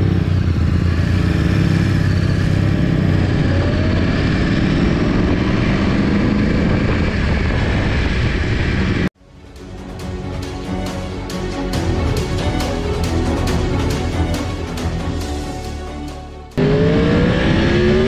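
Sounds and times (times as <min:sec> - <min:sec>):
sport bike engine at high speed: 0:00.0 - 0:09.1, 0:16.6 - 0:18.0
rush of wind noise: 0:01.0 - 0:09.1.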